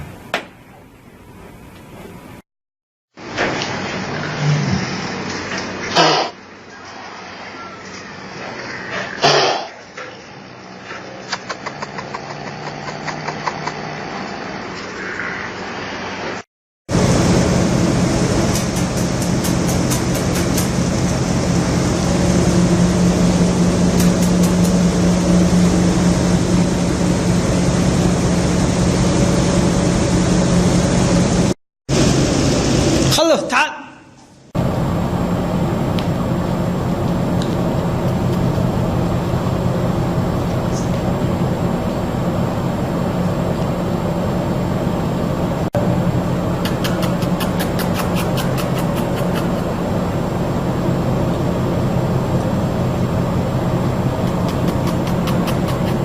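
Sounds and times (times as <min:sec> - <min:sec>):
mechanical drone with low hum: 0:16.9 - 0:33.2, 0:34.6 - 0:56.0
low engine rumble: 0:34.6 - 0:56.0.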